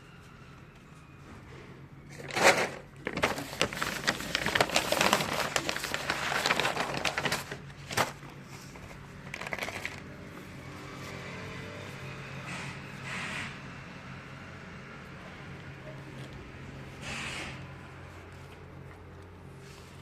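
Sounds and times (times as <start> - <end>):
plastic packaging crinkling: 2.2 - 10.1.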